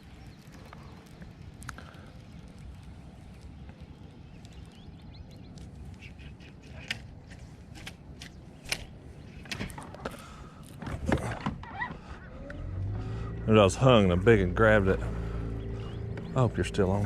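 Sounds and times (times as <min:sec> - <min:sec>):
wind and water rumble: 0:00.0 - 0:17.0
clicks and knocks in a boat: 0:06.6 - 0:12.2.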